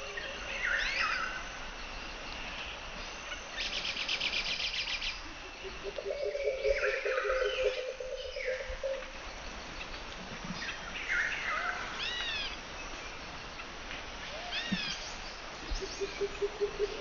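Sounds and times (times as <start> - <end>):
faint high insect drone: 0.0 - 17.0
birds whistling calls: 3.6 - 9.1
low pulsing animal call: 5.2 - 9.1.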